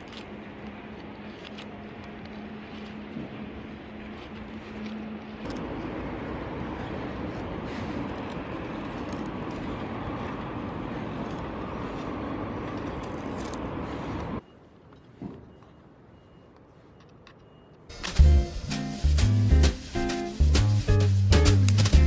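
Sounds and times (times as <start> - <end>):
outdoor rushing noise: 0.0 - 14.4.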